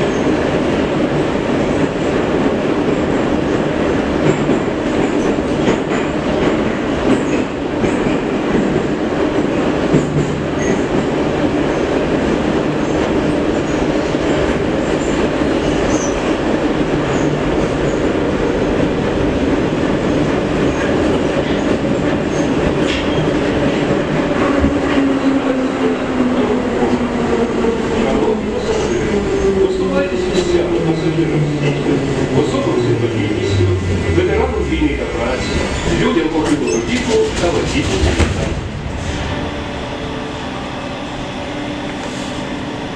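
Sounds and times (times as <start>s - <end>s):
train wheels rumbling on rails: 0.0s - 42.9s
train motor tone: 39.1s - 42.9s.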